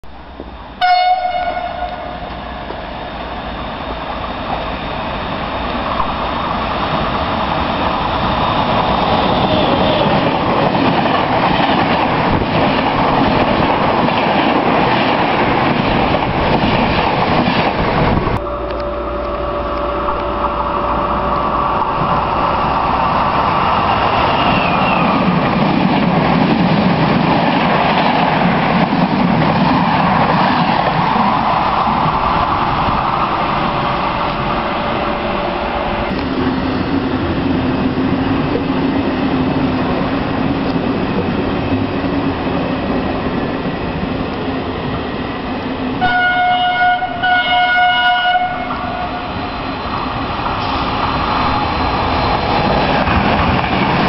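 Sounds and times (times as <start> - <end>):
train rumble and wheel clatter: 0.0 - 54.0
train horn blast: 0.8 - 2.3, 18.4 - 21.5, 46.0 - 49.3
high squeal: 23.6 - 25.3.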